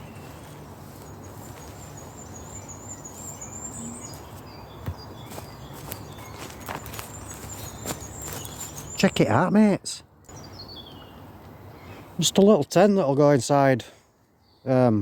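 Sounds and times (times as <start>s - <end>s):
steady background noise: 0.0s - 13.8s.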